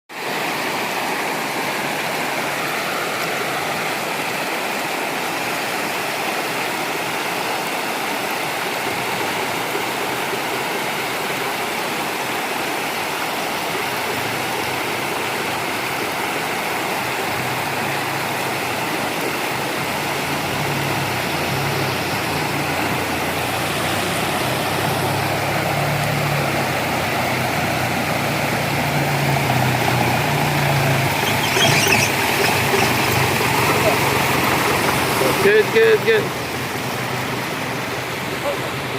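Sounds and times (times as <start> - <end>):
vehicle engine hum: 0.2 - 38.9
waterfall rushing: 0.2 - 38.9.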